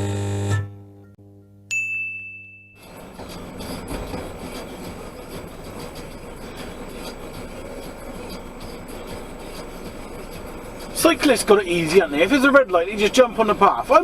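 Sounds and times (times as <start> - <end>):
held musical tone: 0.0 - 14.0
bright ding: 1.4 - 2.8
truck road noise: 2.8 - 14.0.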